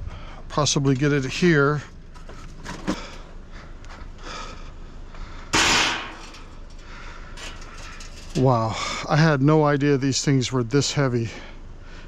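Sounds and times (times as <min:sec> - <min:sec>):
rush of noise from steel moving: 0:05.5 - 0:06.6.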